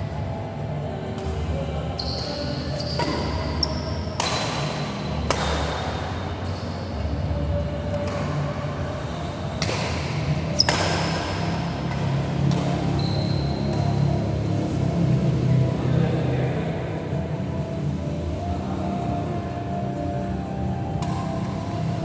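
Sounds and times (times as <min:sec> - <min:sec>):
shoe squeaks on court floor: 0:02.0 - 0:04.8, 0:06.4 - 0:07.1, 0:10.5 - 0:11.5, 0:12.5 - 0:14.0
racket hitting shuttlecock: 0:02.7 - 0:06.8, 0:07.9 - 0:14.1, 0:21.0 - 0:21.6.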